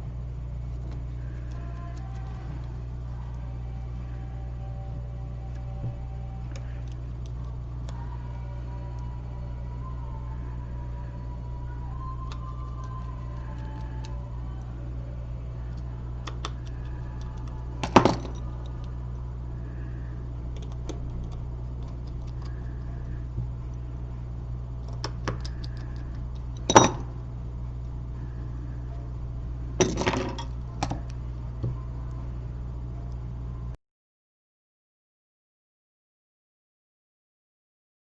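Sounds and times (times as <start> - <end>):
steady low hum: 0.0 - 33.8
small tools clicking and tapping: 24.8 - 27.0.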